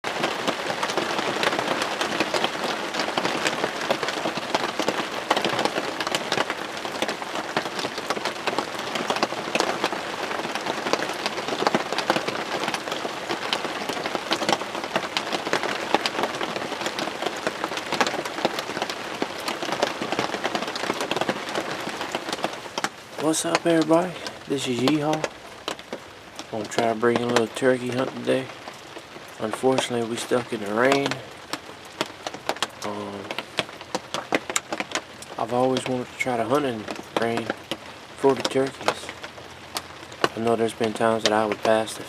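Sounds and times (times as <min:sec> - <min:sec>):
rain on a blind: 0:00.0 - 0:42.0.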